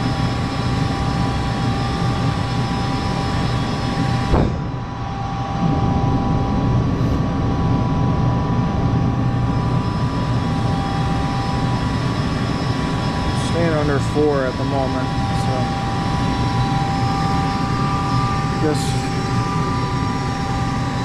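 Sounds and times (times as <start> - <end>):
motor humming with whine: 0.0 - 21.0.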